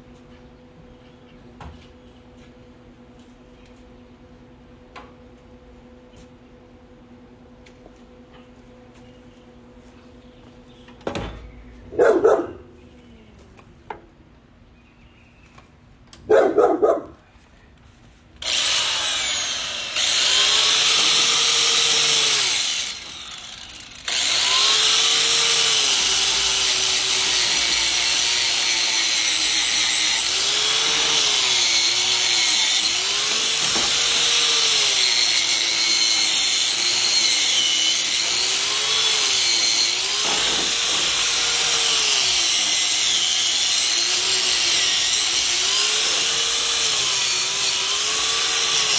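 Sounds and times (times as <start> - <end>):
dog barking: 11.9 - 12.7, 16.3 - 17.2
angle grinder wire brush on steel: 18.4 - 48.9.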